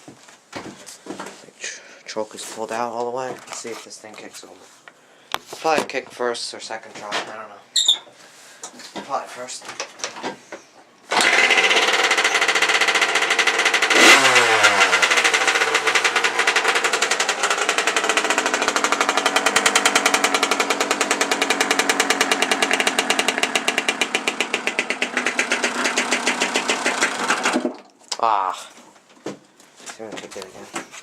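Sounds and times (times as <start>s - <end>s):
two-stroke engine revving and running: 11.1s - 27.7s.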